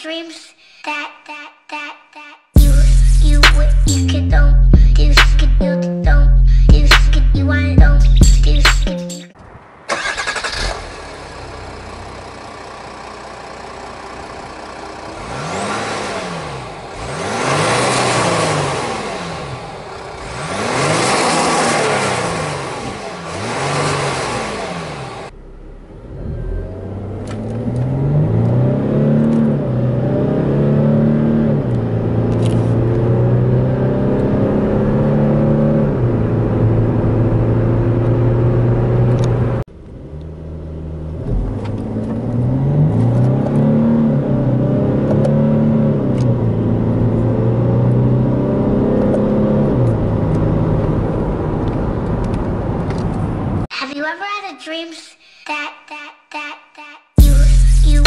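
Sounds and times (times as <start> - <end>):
car engine accelerating hard: 9.6 - 53.7.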